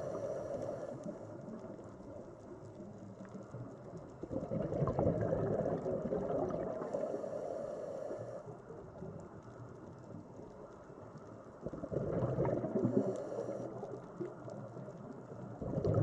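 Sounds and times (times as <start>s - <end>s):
underwater gurgling water: 0.0s - 16.0s.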